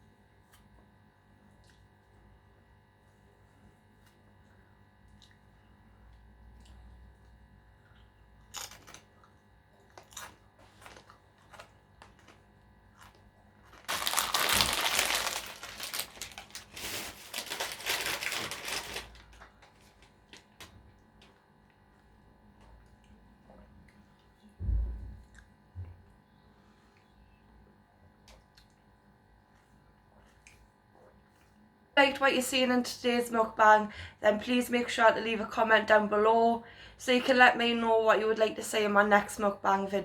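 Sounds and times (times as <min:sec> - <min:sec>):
wrapper crinkling: 0:10.0 - 0:20.9
low thump: 0:24.6 - 0:25.3.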